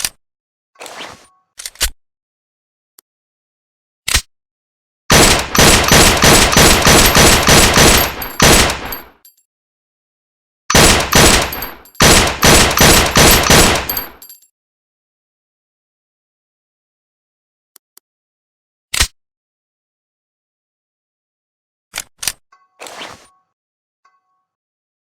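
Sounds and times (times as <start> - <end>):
gunshots: 5.1 - 9.1, 10.7 - 14.2
rapid gunfire bursts: 5.1 - 9.1, 10.7 - 14.2.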